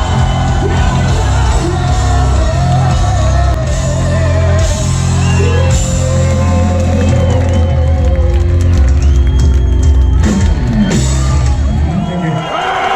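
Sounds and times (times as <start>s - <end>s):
person shouting and singing: 0.0s - 8.4s
distorted guitar: 0.0s - 12.1s
heavy bass: 0.0s - 12.2s.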